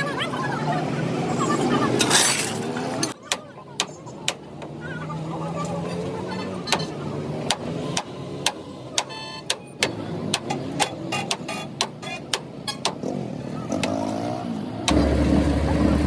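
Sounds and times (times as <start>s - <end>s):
loud engine drone: 14.9s - 16.0s.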